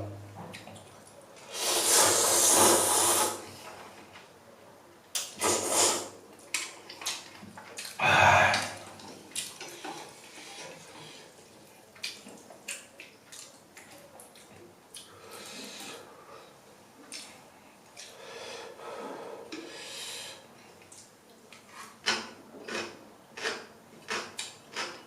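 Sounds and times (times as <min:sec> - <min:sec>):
slurping noodles: 0:01.4 - 0:03.4, 0:05.4 - 0:06.1.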